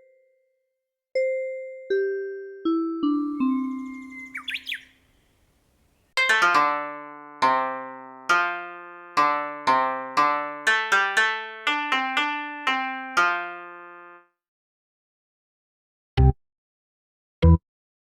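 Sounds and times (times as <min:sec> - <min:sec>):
piano-like keyboard melody: 0:01.2 - 0:04.5, 0:06.2 - 0:14.3.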